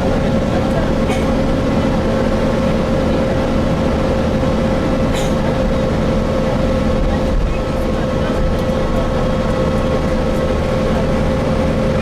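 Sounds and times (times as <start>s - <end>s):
bus engine drone: 0.0s - 12.0s
mid-pitched whine: 0.0s - 12.0s
road noise: 0.0s - 12.0s.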